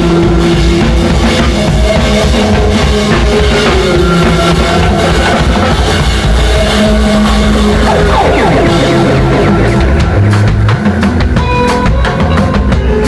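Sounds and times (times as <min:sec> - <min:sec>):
live rock band playing: 0:00.0 - 0:13.0
pitch glides: 0:07.5 - 0:11.1
drum hits: 0:07.6 - 0:11.6.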